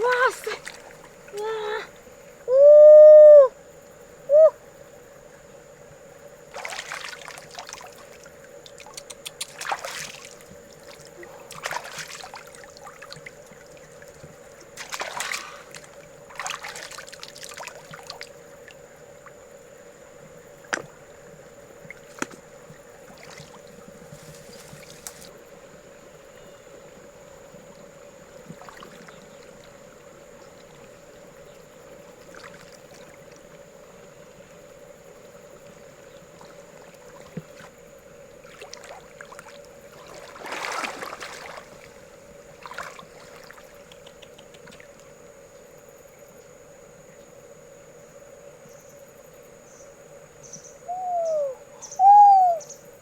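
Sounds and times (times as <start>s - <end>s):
river water splashing: 0.0s - 2.4s, 6.4s - 19.5s, 20.4s - 25.8s, 26.9s - 45.2s
faint hum: 0.0s - 53.0s.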